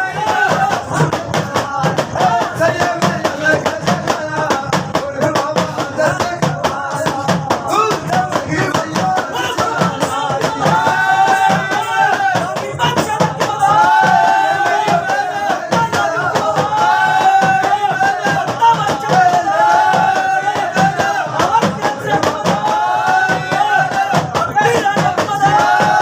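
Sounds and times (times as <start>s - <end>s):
man singing folk song: 0.0s - 13.8s, 23.5s - 25.7s
hand percussion: 0.0s - 26.0s.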